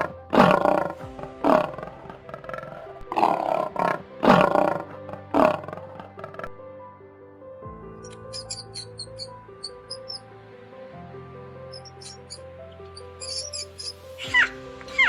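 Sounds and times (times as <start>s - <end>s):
lion roaring: 0.0s - 6.6s
background music: 0.0s - 15.0s.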